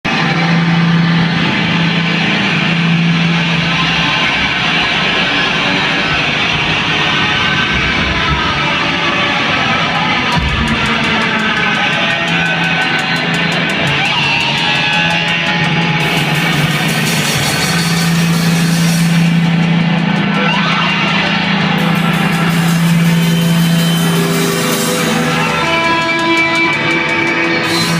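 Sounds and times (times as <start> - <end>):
distorted electric guitars: 0.0 - 27.9.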